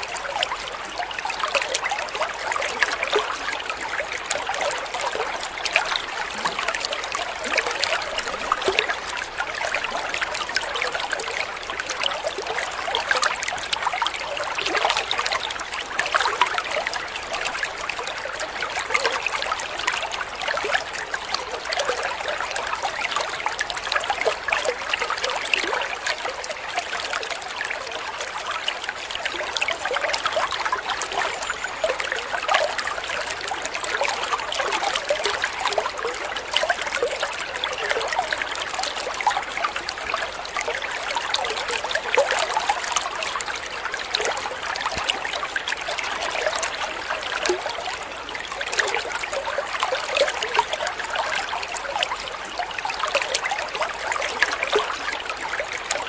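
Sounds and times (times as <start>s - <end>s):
stream trickling over stones: 0.0s - 56.0s.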